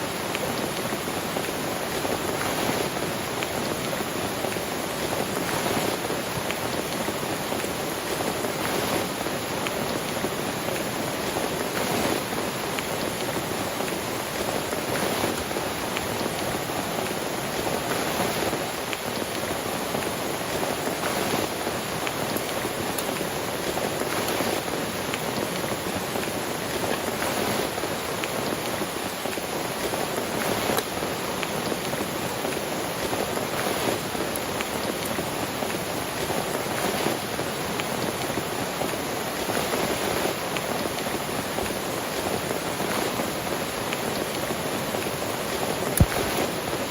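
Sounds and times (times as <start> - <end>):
steady rain hiss: 0.0 - 46.9
raindrop taps: 45.9 - 46.7.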